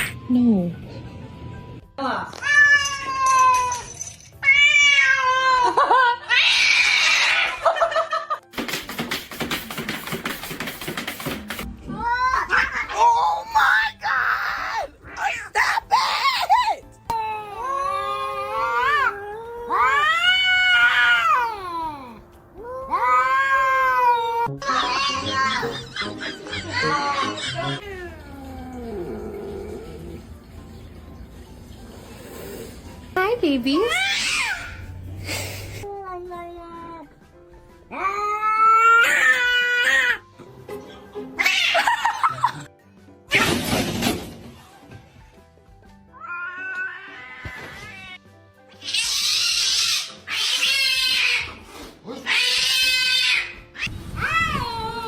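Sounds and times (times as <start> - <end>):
cats yowling: 4.4 - 7.7, 17.4 - 21.9, 37.9 - 40.2, 41.4 - 42.6, 46.1 - 48.2, 48.8 - 55.0.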